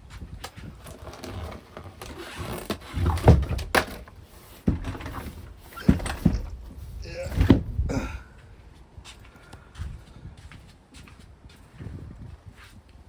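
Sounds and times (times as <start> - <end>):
irregular knocks and thumps: 4.6 - 7.9
low rumbling: 5.4 - 8.7.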